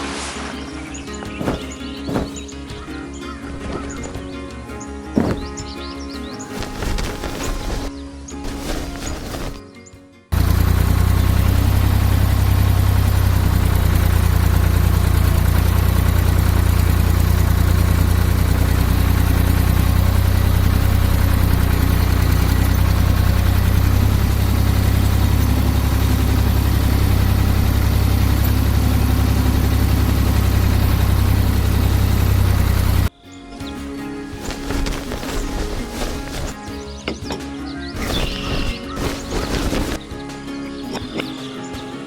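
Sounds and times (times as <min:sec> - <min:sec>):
engine idling: 0:10.3 - 0:33.1.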